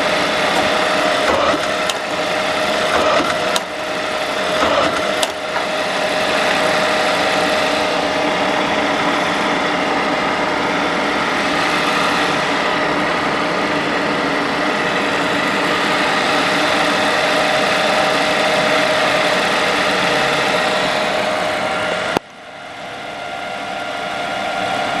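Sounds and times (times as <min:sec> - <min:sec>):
paper drill machine humming: 0:00.0 - 0:25.0.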